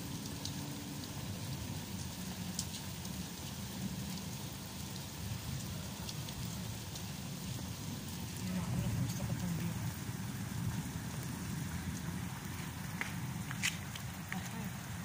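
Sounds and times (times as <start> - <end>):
rain on stone paving: 0.0 - 15.0
drip ticks: 1.9 - 4.2.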